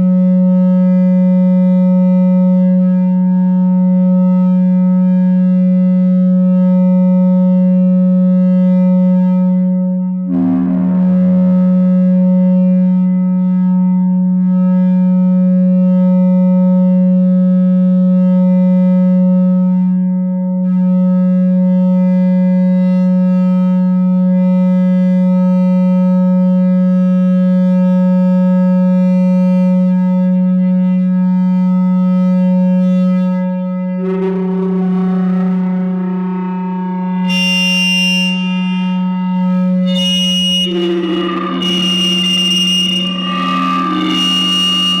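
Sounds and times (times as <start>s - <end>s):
feedback drone: 10.2s - 13.8s, 32.8s - 45.0s
buzzy high tones: 10.3s - 12.8s, 34.1s - 45.0s.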